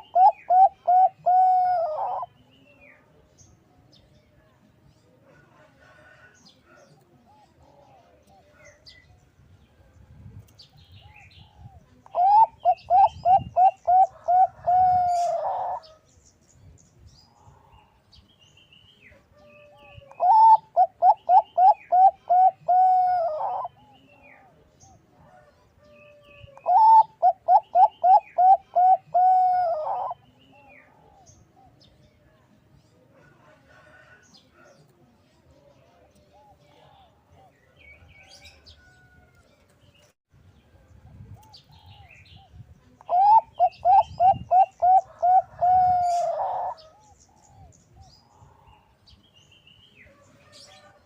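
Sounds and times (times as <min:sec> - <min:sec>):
dove cooing: 0:00.0 - 0:02.3, 0:11.0 - 0:16.0, 0:19.7 - 0:24.6, 0:26.5 - 0:30.2, 0:43.1 - 0:47.7.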